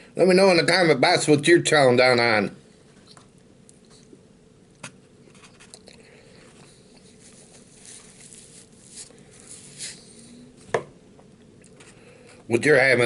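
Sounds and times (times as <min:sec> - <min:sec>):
man chewing: 0:05.4 - 0:10.2.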